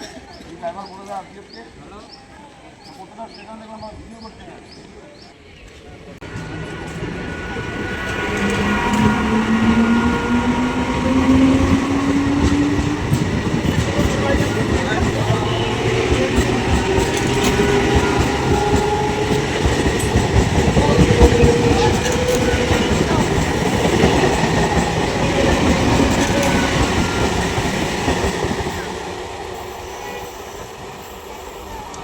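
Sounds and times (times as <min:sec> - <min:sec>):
train rumbling past: 0:03.6 - 0:32.0
train wheels clattering over rail joints: 0:07.9 - 0:29.0.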